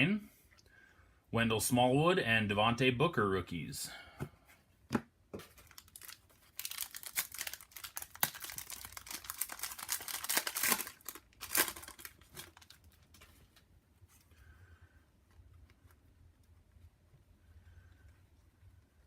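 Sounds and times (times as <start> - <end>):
foil wrapper tearing and crinkling: 5.6 - 13.2.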